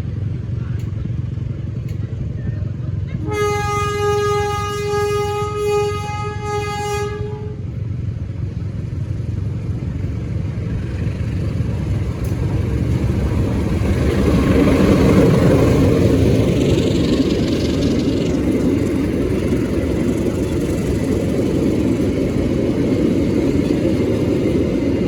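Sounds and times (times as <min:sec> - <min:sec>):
train wheels rumbling on rails: 0:00.0 - 0:25.0
locomotive horn: 0:03.2 - 0:07.7.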